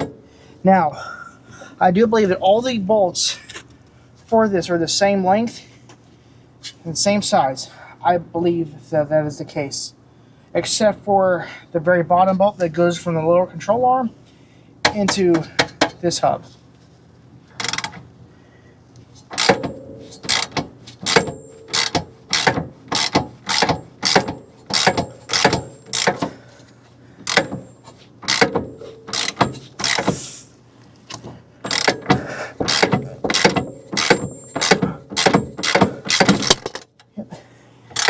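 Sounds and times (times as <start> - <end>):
hand ratchet clicking: 17.6 - 18.0, 19.3 - 26.3, 27.2 - 30.3, 31.6 - 37.0.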